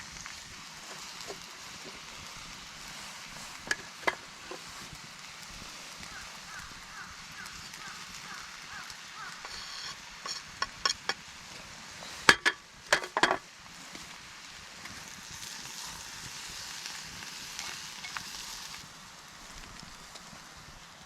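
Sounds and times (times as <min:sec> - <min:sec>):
food sizzling: 0:00.0 - 0:21.0
utensil knocking cookware: 0:03.6 - 0:04.6, 0:09.4 - 0:11.2, 0:12.3 - 0:13.4.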